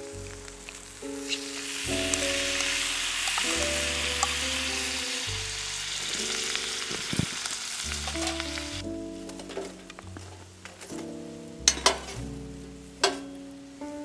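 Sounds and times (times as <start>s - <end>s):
food sizzling in frying pan: 0.0s - 8.9s
background music of held chords: 0.0s - 14.0s.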